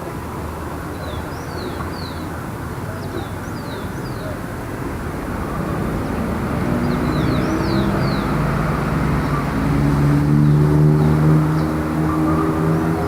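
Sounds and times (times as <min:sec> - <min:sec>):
road noise: 0:00.0 - 0:13.0
vehicle engine accelerating: 0:05.0 - 0:13.0.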